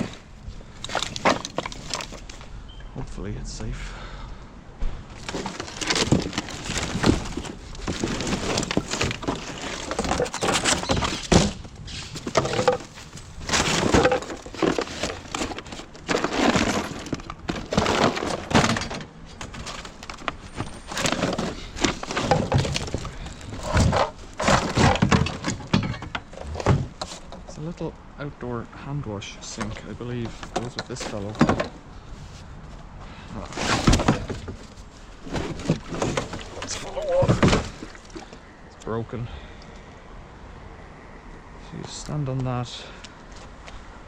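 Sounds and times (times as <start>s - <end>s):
rubbish clattering and clinking: 0.0s - 2.5s, 5.1s - 27.7s, 29.4s - 38.6s.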